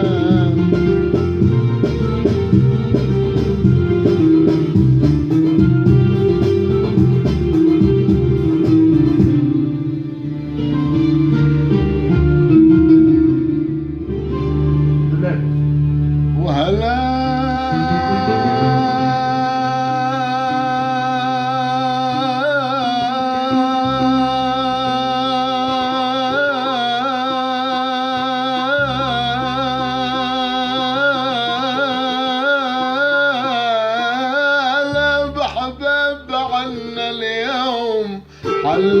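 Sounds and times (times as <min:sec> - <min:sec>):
man singing ornamented folk melody: 0:00.0 - 0:01.8, 0:16.4 - 0:39.0
sustained low backing notes: 0:00.0 - 0:39.0.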